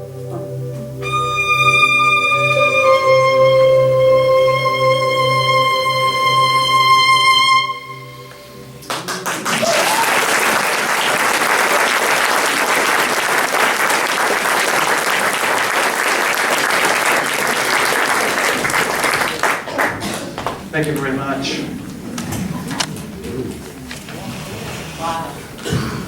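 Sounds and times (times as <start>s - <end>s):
held instrumental note: 0.0s - 8.9s
audience applause: 8.8s - 21.2s.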